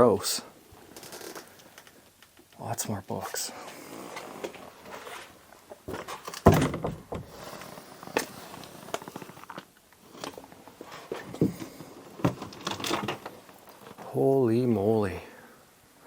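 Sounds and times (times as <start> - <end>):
thumps and knocks: 5.9 - 7.3.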